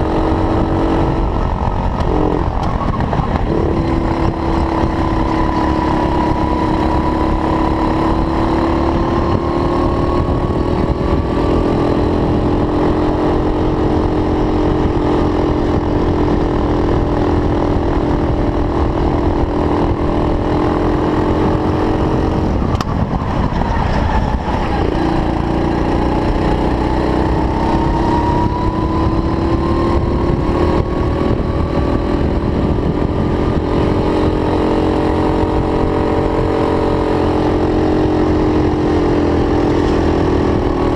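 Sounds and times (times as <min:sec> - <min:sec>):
racing kart engine revving: 0:00.0 - 0:15.8.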